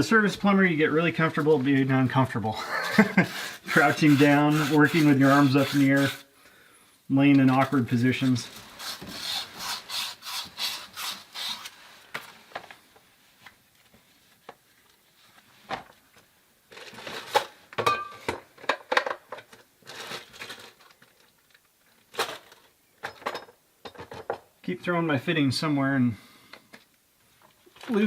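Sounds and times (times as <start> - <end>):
scrubbing copper pipe with abrasive: 2.7 - 6.3, 7.5 - 12.0.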